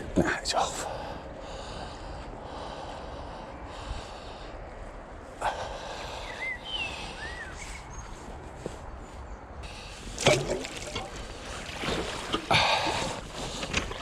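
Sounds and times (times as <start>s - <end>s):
man breathing hard: 0.8s - 7.8s, 12.5s - 13.7s.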